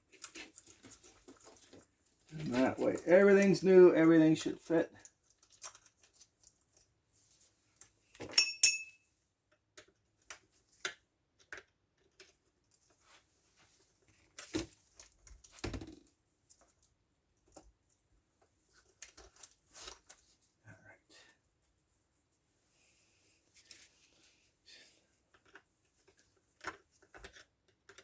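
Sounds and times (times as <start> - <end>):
metallic clink: 8.2 - 9.0.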